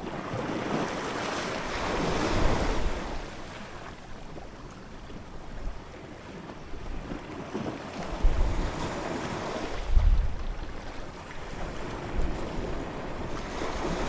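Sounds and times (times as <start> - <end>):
ocean waves washing on shore: 7.1 - 14.0
wind buffeting microphone: 8.1 - 8.9, 9.6 - 14.0.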